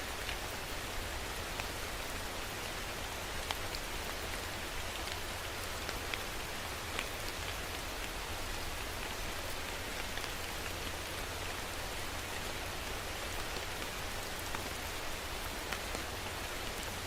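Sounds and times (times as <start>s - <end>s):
steady rain falling: 0.0s - 17.0s
raindrop ticks: 6.9s - 8.2s.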